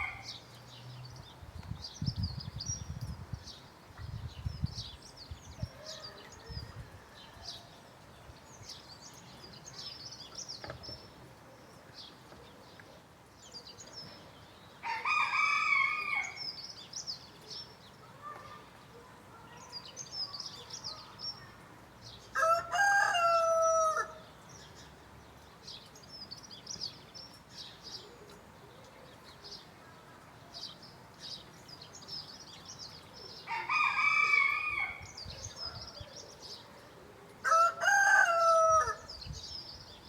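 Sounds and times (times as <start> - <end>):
small birds chirping: 0.0 - 23.4, 24.0 - 40.0
rooster crowing: 22.4 - 24.2, 33.5 - 35.0, 37.4 - 39.1.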